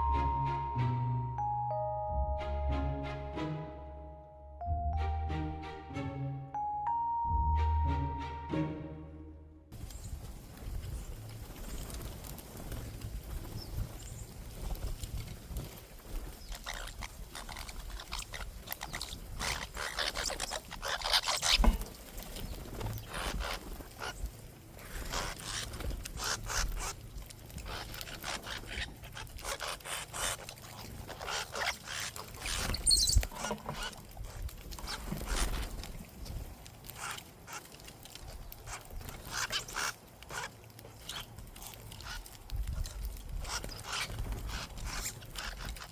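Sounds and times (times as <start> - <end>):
birds pecking at a feeder: 9.8 - 45.9.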